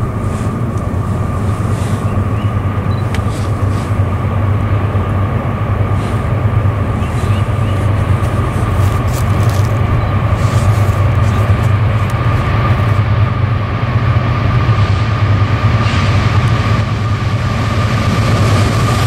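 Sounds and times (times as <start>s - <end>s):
diesel locomotive rumble: 0.0s - 19.0s
high rail hum: 0.0s - 19.0s
faint bird chirps: 7.0s - 7.9s.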